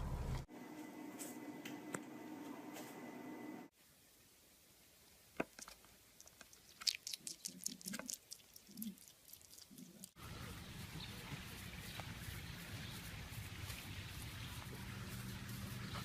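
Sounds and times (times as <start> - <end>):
animal chewing crunchy food: 5.6 - 16.0.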